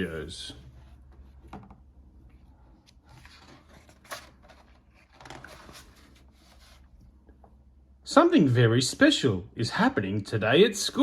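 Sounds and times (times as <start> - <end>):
book pages rustling: 2.2 - 7.2.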